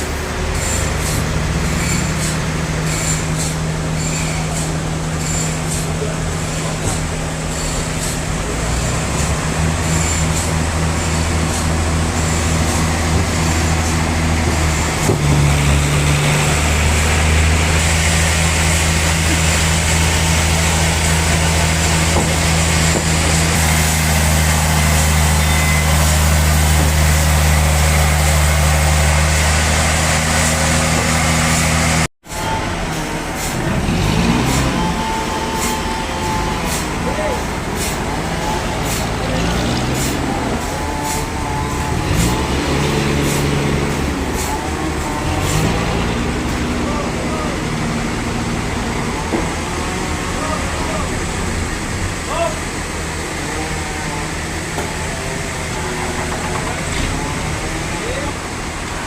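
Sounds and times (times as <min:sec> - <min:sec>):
sawmill machinery humming: 0:00.0 - 0:59.0.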